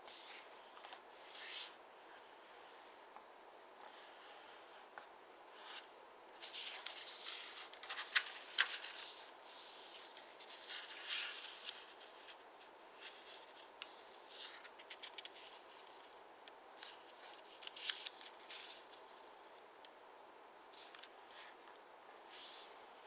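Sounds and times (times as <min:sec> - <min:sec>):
paper rustling and folding: 0:05.6 - 0:16.2, 0:16.8 - 0:19.2
paper crackles: 0:06.4 - 0:12.4.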